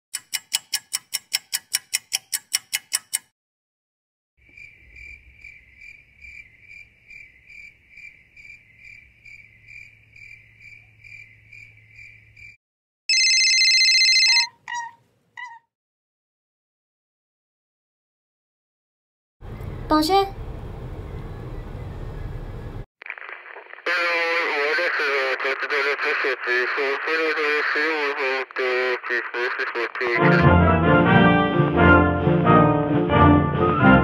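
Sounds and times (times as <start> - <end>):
cricket chirping: 4.4 - 12.6.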